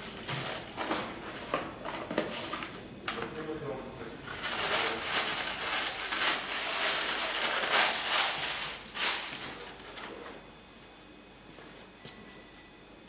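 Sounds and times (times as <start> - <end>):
rustling and crinkling: 4.3 - 10.9.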